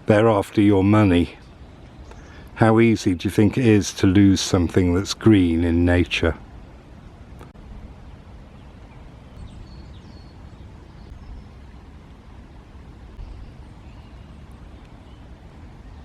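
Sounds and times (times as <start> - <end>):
woodland ambience: 0.0 - 16.0
faint high bird chirps: 8.4 - 11.9, 13.1 - 16.0.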